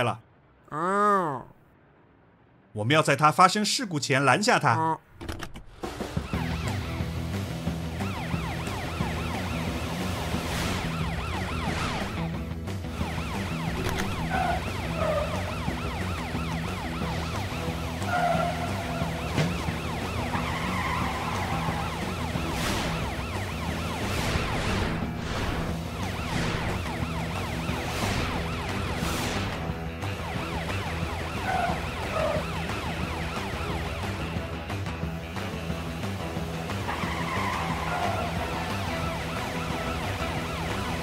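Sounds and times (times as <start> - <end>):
background music: 5.6 - 41.0
cartoon police siren wailing: 7.9 - 12.3, 13.0 - 24.9, 25.6 - 29.1, 30.0 - 34.4, 36.8 - 41.0.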